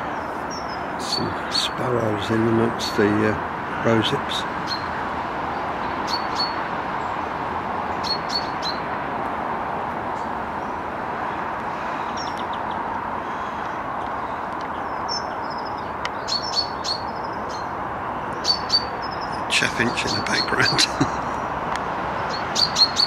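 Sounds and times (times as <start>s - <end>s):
songbirds chirping: 0.0s - 23.0s.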